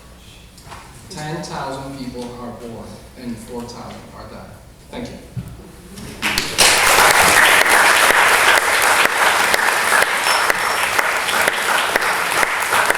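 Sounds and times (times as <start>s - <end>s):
audience applause: 6.1s - 12.9s.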